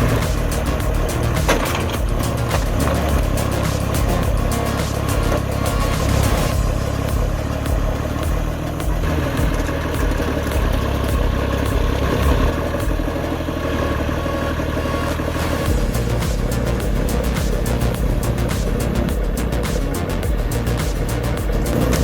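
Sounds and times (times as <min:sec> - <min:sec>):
large machine engine running: 0:00.0 - 0:22.0.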